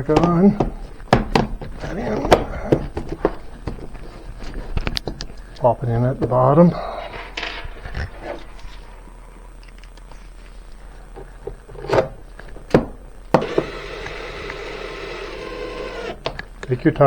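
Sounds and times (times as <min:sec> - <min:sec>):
cordless drill running: 0:13.3 - 0:16.4.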